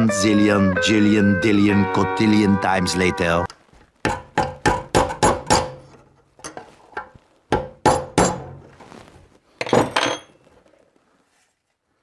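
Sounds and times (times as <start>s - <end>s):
hammer striking metal shaft: 4.1s - 6.0s, 7.5s - 8.5s.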